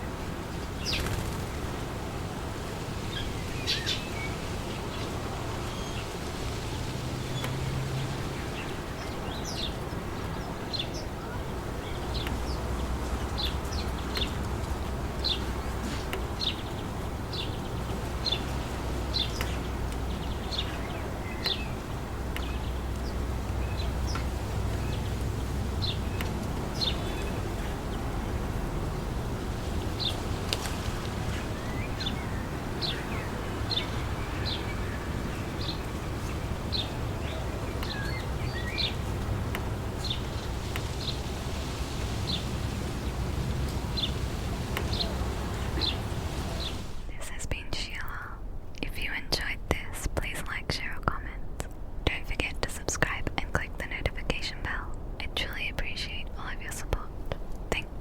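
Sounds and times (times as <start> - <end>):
wind blowing through trees: 0.0 - 58.0
bird chirping: 3.0 - 48.1.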